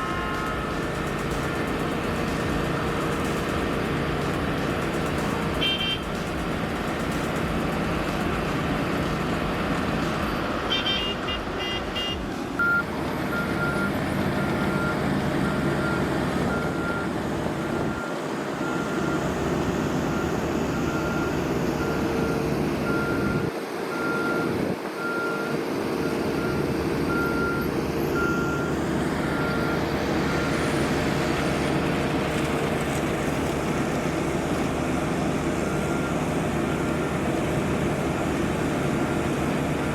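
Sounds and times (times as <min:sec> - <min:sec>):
reversing alarm beeping: 0:00.0 - 0:32.2, 0:33.2 - 0:39.9
heavy diesel engines running: 0:00.0 - 0:39.9.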